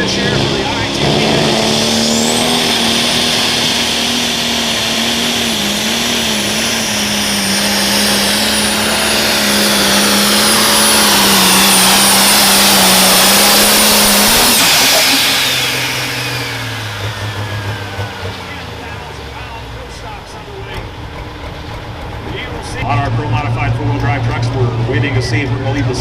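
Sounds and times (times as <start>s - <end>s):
diesel engine running flat out: 0.0s - 26.0s.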